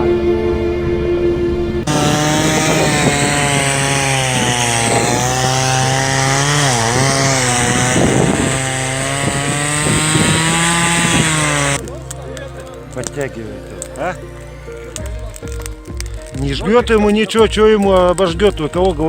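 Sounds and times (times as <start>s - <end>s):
chainsaw running: 1.8s - 16.4s.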